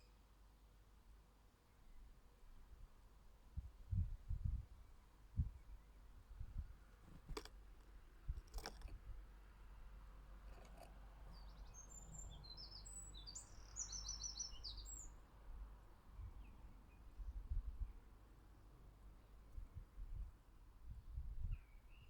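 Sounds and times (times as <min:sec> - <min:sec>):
songbird chirping: 0:10.5 - 0:18.3.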